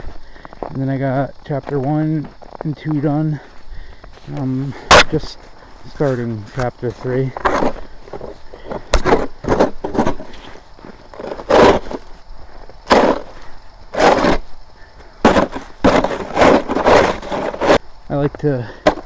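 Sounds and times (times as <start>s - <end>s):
snow shovel scraping snow: 7.3s - 8.4s, 9.0s - 12.1s, 12.9s - 14.5s, 15.2s - 17.8s.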